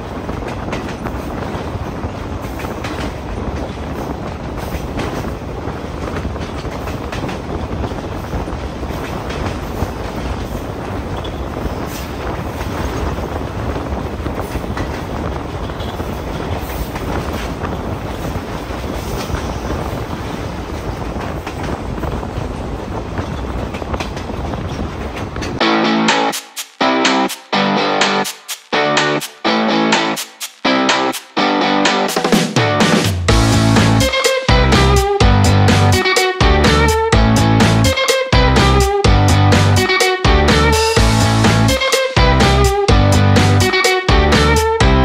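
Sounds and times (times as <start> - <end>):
wheels clicking over rail joints: 0.0 - 25.6
train wheels rumbling on rails: 0.0 - 25.7, 26.3 - 45.0.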